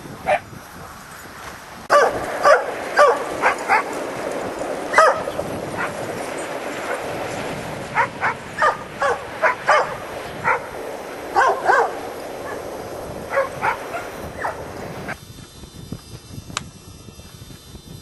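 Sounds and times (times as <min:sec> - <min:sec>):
dog barking and yipping: 0:00.2 - 0:00.5, 0:01.9 - 0:15.2.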